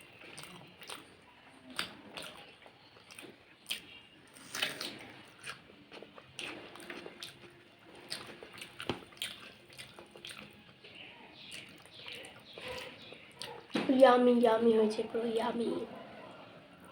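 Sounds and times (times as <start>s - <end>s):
person chewing food: 0.0s - 13.7s
mouth clicks and smacks: 0.3s - 1.1s, 1.7s - 5.6s, 6.4s - 10.5s.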